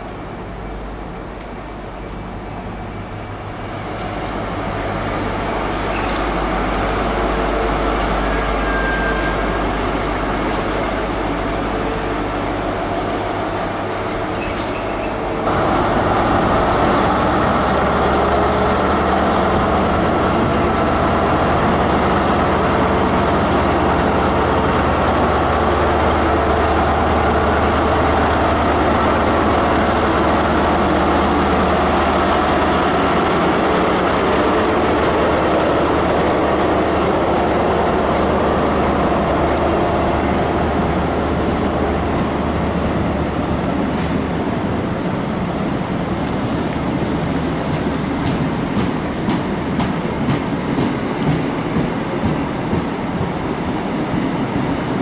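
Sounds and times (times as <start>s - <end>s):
diesel locomotive rumbling: 0.0s - 55.0s
train approaching on rails: 0.0s - 55.0s
train wheels squealing: 5.7s - 6.3s, 8.0s - 15.5s, 43.9s - 49.4s.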